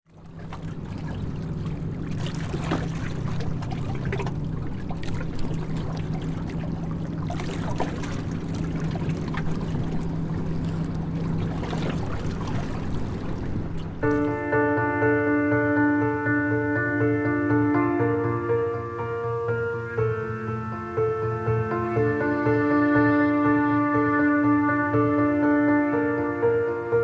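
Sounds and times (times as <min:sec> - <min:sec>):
small splashes: 0:00.0 - 0:14.4
water trickling and splashing: 0:00.0 - 0:14.5
low motor hum: 0:00.0 - 0:15.0.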